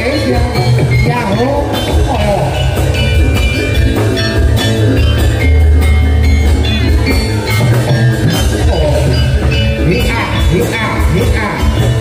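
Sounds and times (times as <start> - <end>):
drums beating: 0.0 - 12.0
gamelan music: 0.0 - 12.0
metallophones ringing bell-like notes: 0.0 - 12.0.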